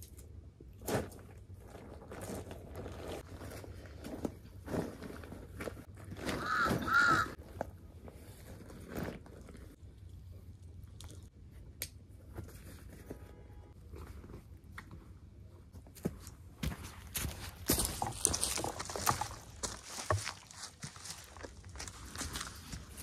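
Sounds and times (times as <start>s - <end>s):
bird calling: 6.4s - 7.4s.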